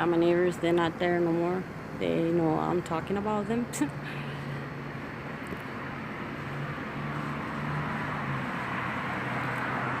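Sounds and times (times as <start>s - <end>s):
distant vehicles rushing: 0.0s - 10.0s.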